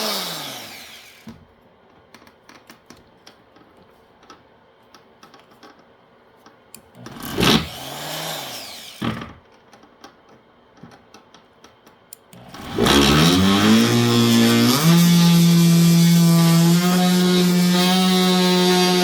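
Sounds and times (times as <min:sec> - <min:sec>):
oscillating multi-tool motor buzz: 0:12.4 - 0:19.0.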